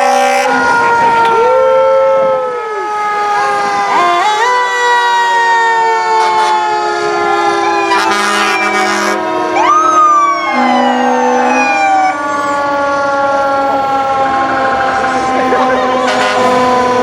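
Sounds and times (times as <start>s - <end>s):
horn blasts: 0.0s - 1.4s, 6.1s - 6.8s, 7.8s - 9.6s, 10.4s - 12.2s, 15.5s - 17.0s
fire truck siren winding down: 0.0s - 17.0s
siren rising and falling: 0.0s - 17.0s.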